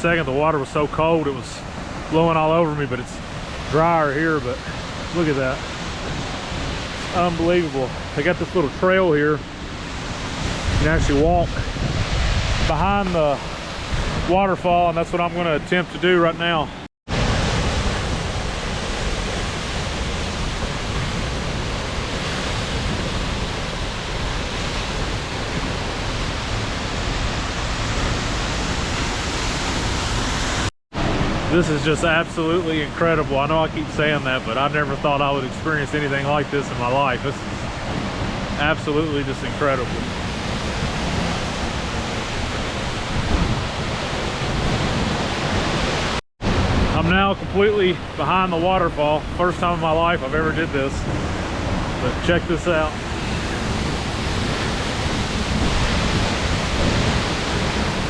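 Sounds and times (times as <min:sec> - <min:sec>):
waterfall rushing: 0:00.0 - 0:15.3, 0:17.1 - 0:47.0, 0:49.5 - 0:58.0
wind buffeting microphone: 0:03.0 - 0:14.4, 0:39.2 - 0:47.0, 0:50.4 - 0:58.0.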